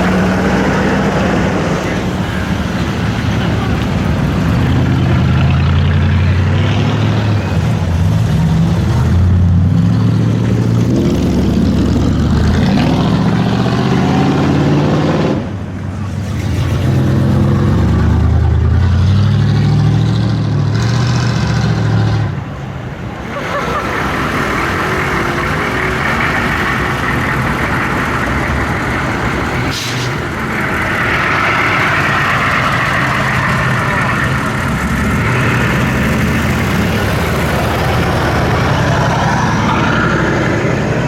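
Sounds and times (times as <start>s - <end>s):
car engines rumbling: 0.0s - 41.0s
traffic noise: 0.0s - 41.0s.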